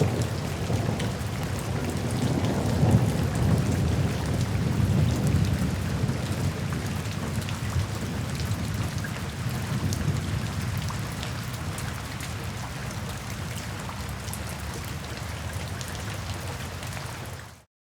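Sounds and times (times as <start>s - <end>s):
rain falling into puddles: 0.0s - 17.7s.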